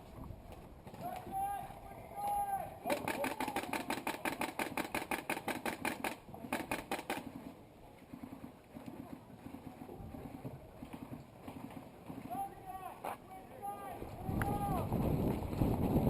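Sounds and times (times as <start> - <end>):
airsoft gun rapid fire: 2.9 - 7.4.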